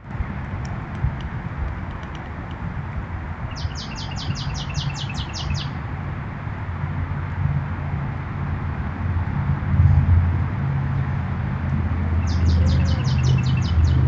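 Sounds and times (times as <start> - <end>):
songbird trill: 3.5 - 5.8, 12.2 - 14.0
steady low rumble: 5.8 - 14.0.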